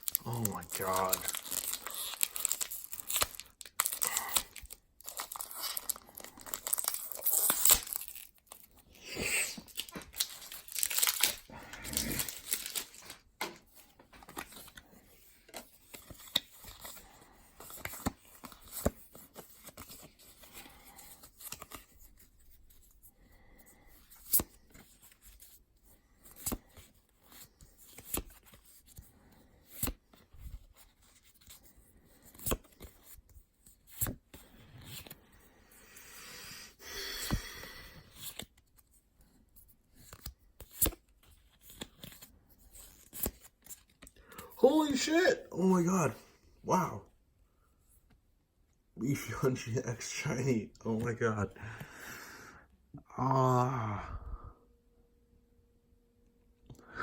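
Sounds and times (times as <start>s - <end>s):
foil wrapper tearing and crinkling: 0.0s - 13.3s
cards clicking and sliding: 12.1s - 22.1s.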